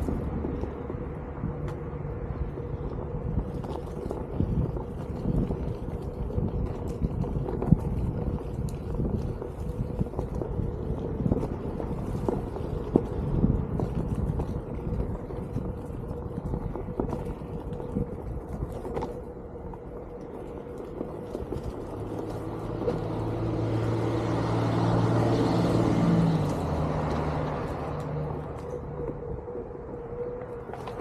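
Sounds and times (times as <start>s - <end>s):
wind rumble on microphone: 0.0s - 31.0s
vehicle engine passing: 20.8s - 29.7s.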